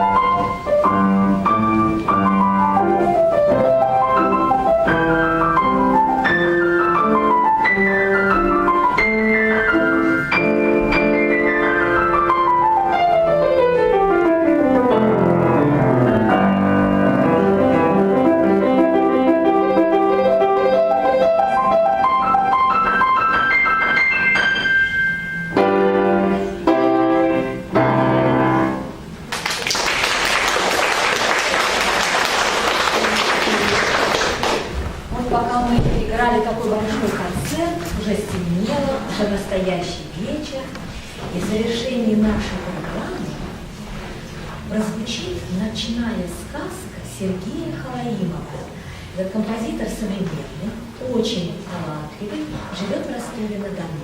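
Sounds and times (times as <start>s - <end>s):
solo piano piece: 0.0s - 29.3s
audience applause: 29.3s - 34.8s.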